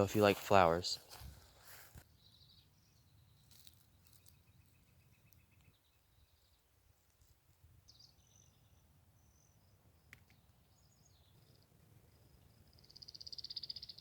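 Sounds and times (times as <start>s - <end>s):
faint high bird chirps: 2.1s - 6.8s, 7.8s - 14.0s
rapid high bird trill: 12.8s - 14.0s.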